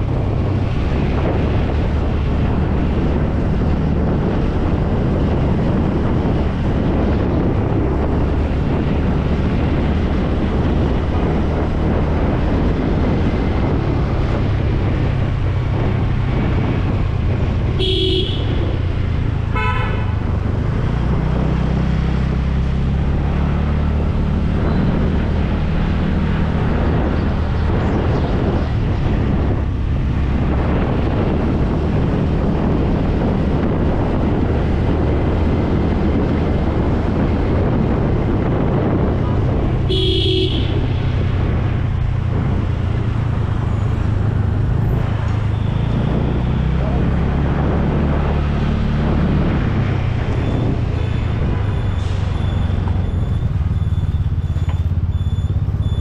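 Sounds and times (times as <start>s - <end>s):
motorcycle engine running: 0.0s - 20.6s, 22.8s - 47.1s, 49.1s - 56.0s
road and wind noise: 0.0s - 56.0s
vehicle horn toot: 17.8s - 18.7s, 19.5s - 20.2s, 39.9s - 41.0s.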